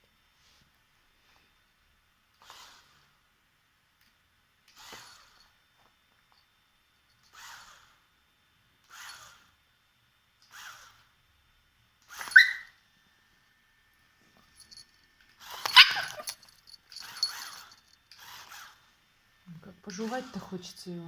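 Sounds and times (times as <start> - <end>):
puppy yapping: 12.2 - 12.8, 15.5 - 16.4.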